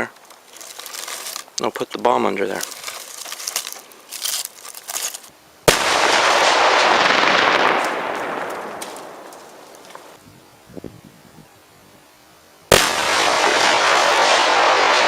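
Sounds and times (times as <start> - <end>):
explosion blast: 5.7 - 9.2.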